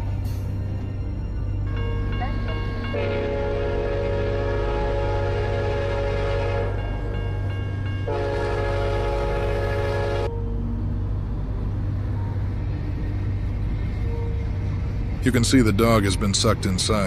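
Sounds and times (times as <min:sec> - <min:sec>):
train low rumble: 0:00.0 - 0:17.0
train horn blasts: 0:02.1 - 0:07.1, 0:08.0 - 0:10.5.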